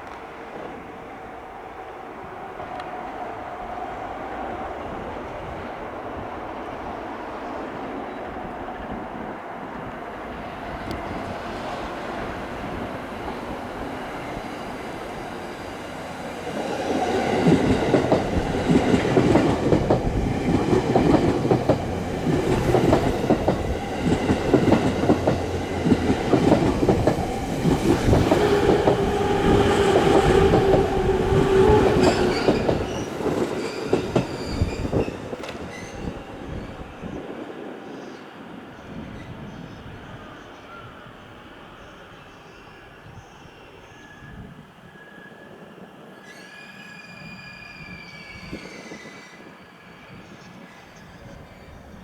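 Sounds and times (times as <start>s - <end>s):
train brakes squealing: 26.0s - 36.9s, 42.0s - 52.0s.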